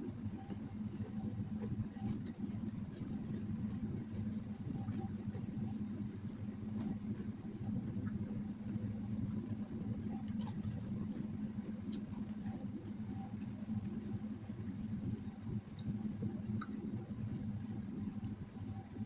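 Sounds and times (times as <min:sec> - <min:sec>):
chewing: 0:01.5 - 0:14.1.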